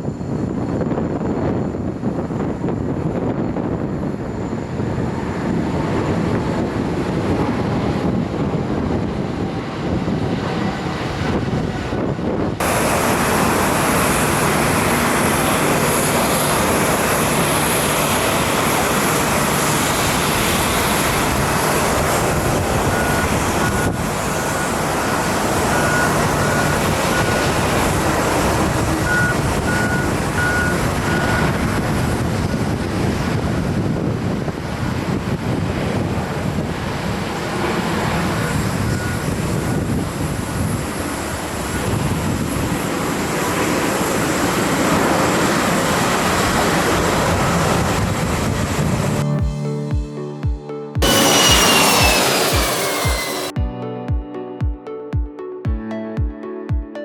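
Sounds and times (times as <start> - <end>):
jet engines running: 0.0 - 49.6, 51.0 - 53.6
high repeating beep: 49.3 - 53.6.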